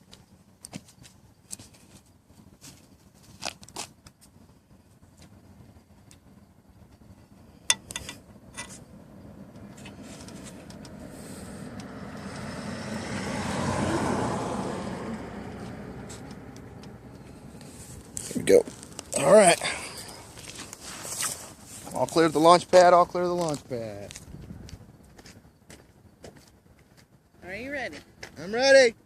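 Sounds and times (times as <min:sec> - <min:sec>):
road vehicle passing: 0:07.8 - 0:25.1.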